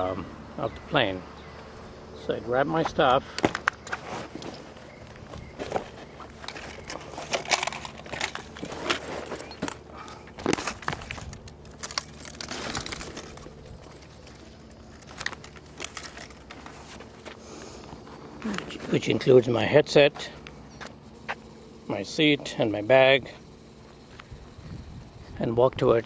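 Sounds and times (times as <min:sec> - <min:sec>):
gear rustling: 0:03.5 - 0:19.2
clicks and clinks: 0:06.5 - 0:09.8, 0:10.5 - 0:16.8.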